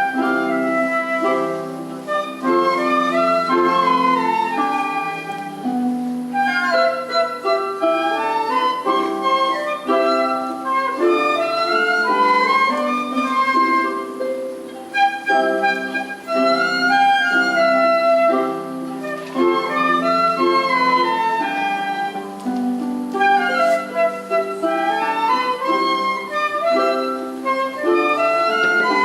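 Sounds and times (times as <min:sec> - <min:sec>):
school concert band playing: 0:00.0 - 0:29.0.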